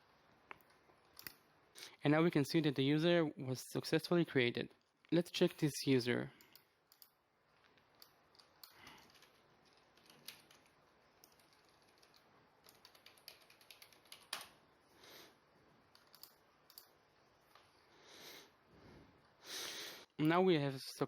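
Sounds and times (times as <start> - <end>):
faint keyboard typing: 6.4 - 14.6, 15.8 - 17.7.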